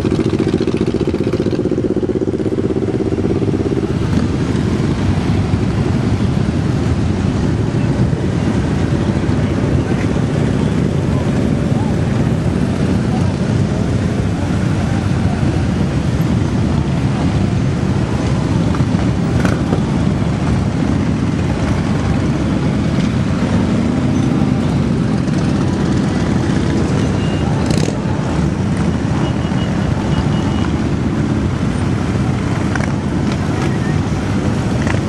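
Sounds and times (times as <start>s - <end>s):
motorcycle engines droning: 0.0s - 35.0s.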